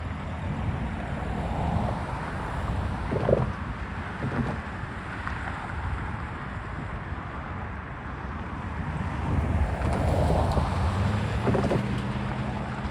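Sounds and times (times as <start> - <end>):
vehicle rumble: 0.0 - 7.0, 7.6 - 12.9
wind buffeting microphone: 0.6 - 5.1, 9.1 - 12.9.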